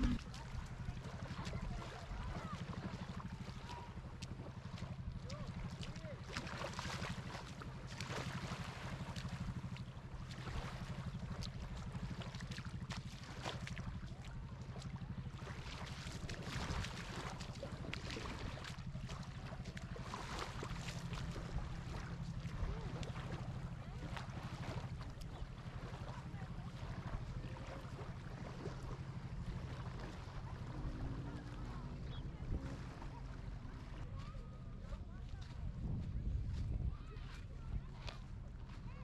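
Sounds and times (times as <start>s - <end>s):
engine humming: 0.0s - 0.7s, 27.2s - 34.8s.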